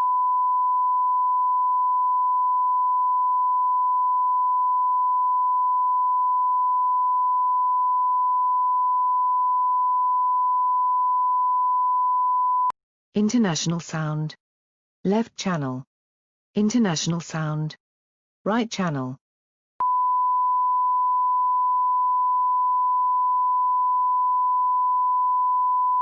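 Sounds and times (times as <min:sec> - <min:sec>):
steady sine-wave reference tone: 0:00.0 - 0:12.7, 0:19.8 - 0:26.0.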